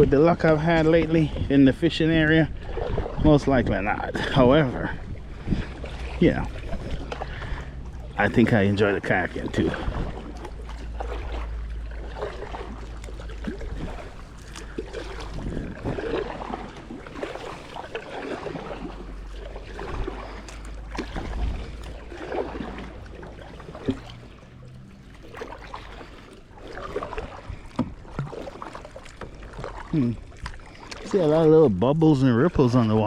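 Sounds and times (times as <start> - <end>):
wind rumble on microphone: 0.0 - 24.3
kayak paddle splashing in water: 0.0 - 33.0.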